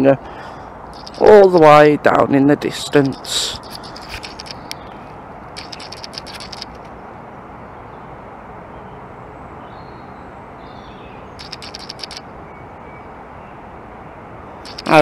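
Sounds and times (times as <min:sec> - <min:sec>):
crackly clicks: 0:01.0 - 0:01.5, 0:03.0 - 0:06.9, 0:11.4 - 0:12.2, 0:14.6 - 0:15.0.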